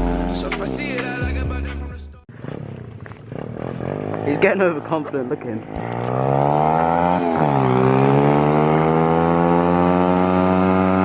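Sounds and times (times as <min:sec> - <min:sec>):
motorbike engine accelerating: 0:02.3 - 0:11.0.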